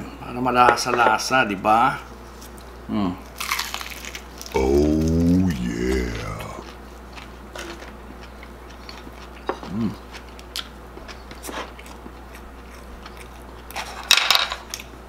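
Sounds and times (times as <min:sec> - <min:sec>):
crunchy chewing: 0:02.3 - 0:15.0
person humming mm: 0:04.5 - 0:06.7.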